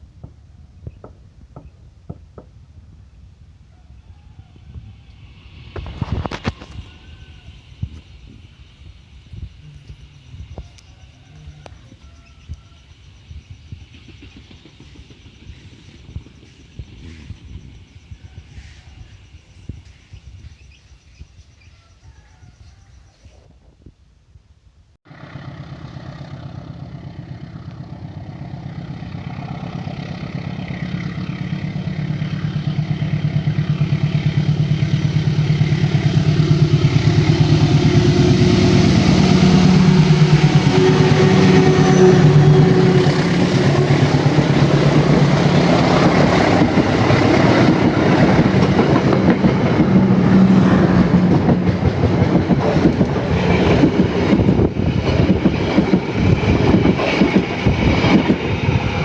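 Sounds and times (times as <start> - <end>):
locomotive engine drone: 1.5 - 21.2, 25.1 - 59.0
train wheels clacking on rail joints: 29.4 - 59.0.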